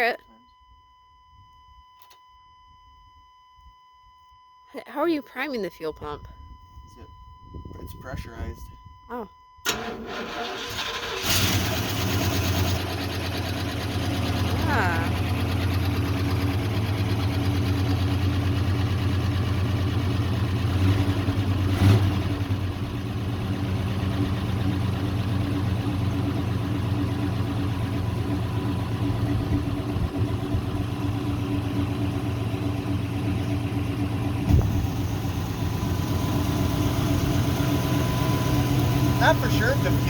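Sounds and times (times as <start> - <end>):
truck engine idling: 9.7 - 21.7, 22.3 - 40.0.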